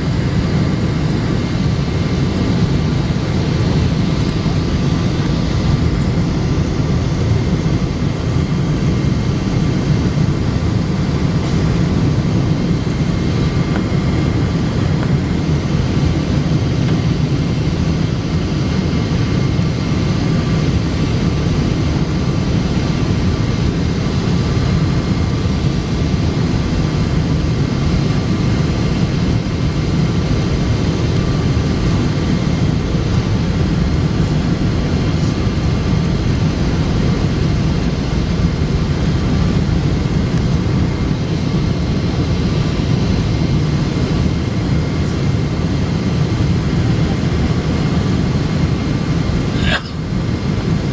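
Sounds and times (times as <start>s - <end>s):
airplane cabin engine roar: 0.0s - 50.9s
faint high whine: 0.0s - 50.9s.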